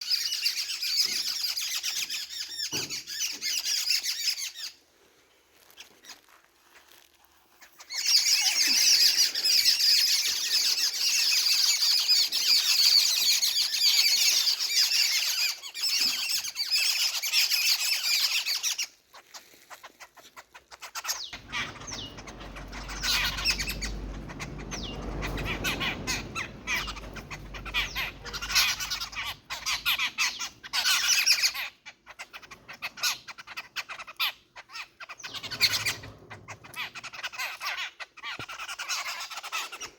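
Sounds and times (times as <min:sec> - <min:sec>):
flock of birds chirping: 0:00.0 - 0:04.8, 0:05.6 - 0:39.9
low rumble: 0:21.3 - 0:30.6.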